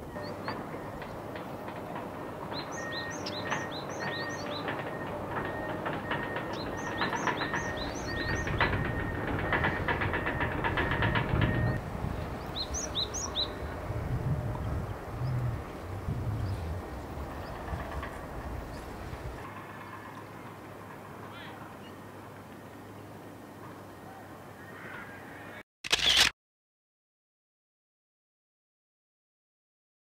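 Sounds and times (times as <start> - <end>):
passing train rumble: 0.0 - 24.6
small birds chirping: 0.2 - 19.4.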